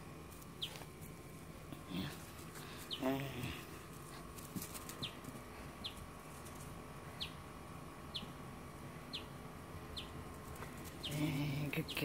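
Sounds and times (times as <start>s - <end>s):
bird chirping: 0.6s - 0.8s, 5.8s - 6.1s, 7.1s - 7.5s, 8.1s - 8.4s, 9.0s - 10.2s, 11.0s - 12.0s.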